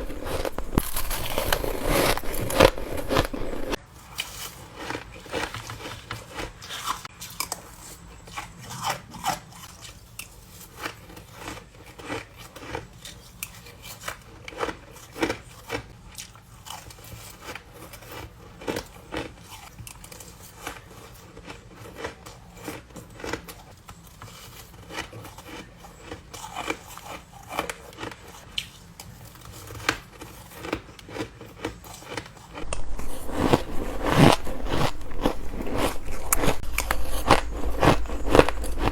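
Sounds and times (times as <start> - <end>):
person crunching ice: 0.0 - 7.0, 29.6 - 38.9.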